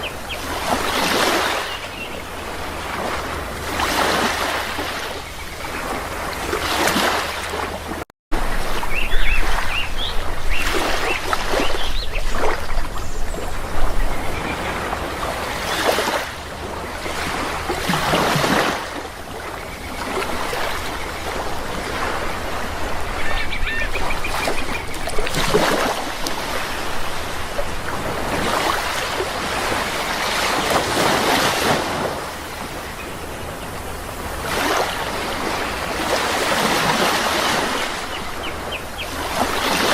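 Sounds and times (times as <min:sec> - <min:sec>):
sea waves washing in: 0:00.0 - 0:39.9
bird calls: 0:08.8 - 0:16.3, 0:22.5 - 0:26.0, 0:37.4 - 0:39.9.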